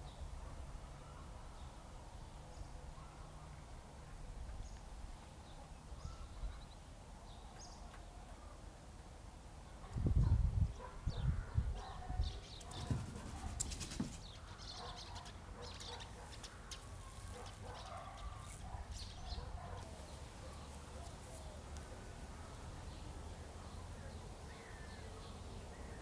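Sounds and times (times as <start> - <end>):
small birds chirping: 10.2 - 26.0.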